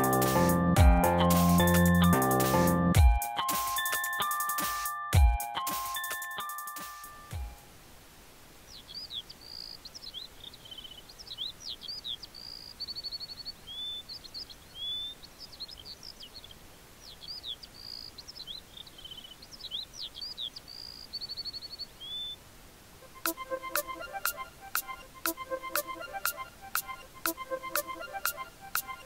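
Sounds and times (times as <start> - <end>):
faint outdoor hiss: 0.0 - 29.0
songbird singing: 8.6 - 29.0.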